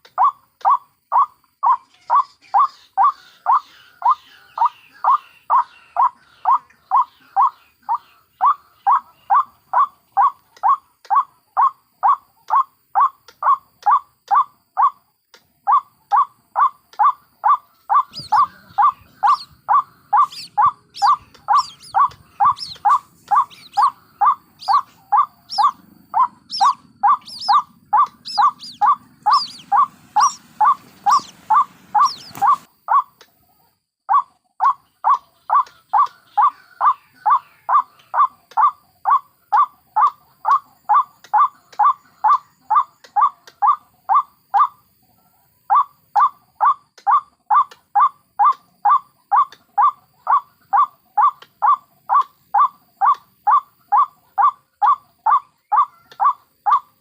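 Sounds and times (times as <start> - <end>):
higher thinner chick calls: 15.7 - 33.1
waterhen calling: 15.7 - 33.1, 45.8 - 57.0.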